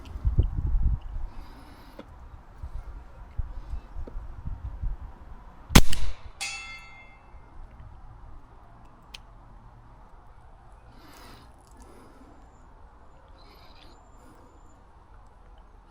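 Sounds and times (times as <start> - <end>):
suppressed pistol shot: 5.8 - 6.4
steel target ringing: 5.8 - 7.4.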